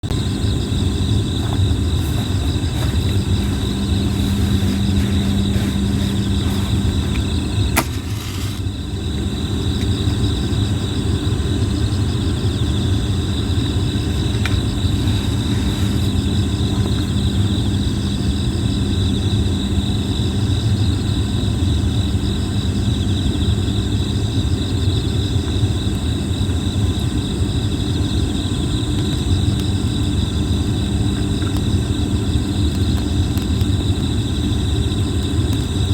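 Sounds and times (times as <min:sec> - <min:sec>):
insects chirping: 0:00.0 - 0:35.9
campfire crackling: 0:00.2 - 0:20.1, 0:28.1 - 0:35.9.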